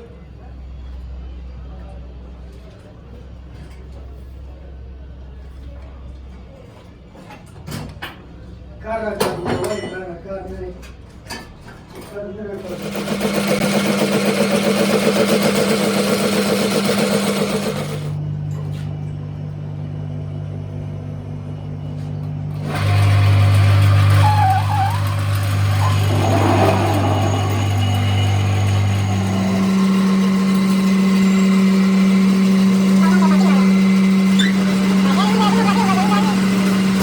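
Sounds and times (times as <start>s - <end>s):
machine motor humming: 22.5s - 37.0s.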